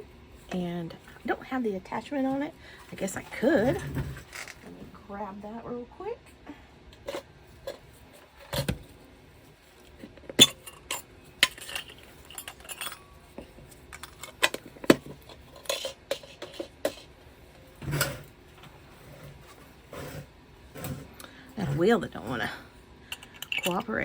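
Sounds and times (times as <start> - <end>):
hard objects clinking: 3.6 - 4.7, 10.4 - 17.1, 23.1 - 23.9.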